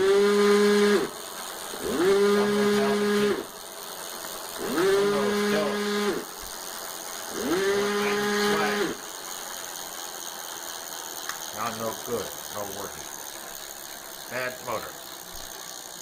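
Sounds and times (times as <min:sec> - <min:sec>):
electric motor whining: 0:00.0 - 0:16.0
low motor hum: 0:04.6 - 0:06.6, 0:07.3 - 0:09.0.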